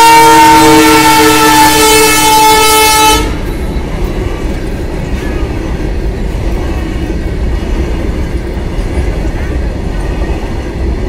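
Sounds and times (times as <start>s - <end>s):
locomotive air horn: 0.0s - 3.4s
freight train rumbling past: 0.0s - 11.0s.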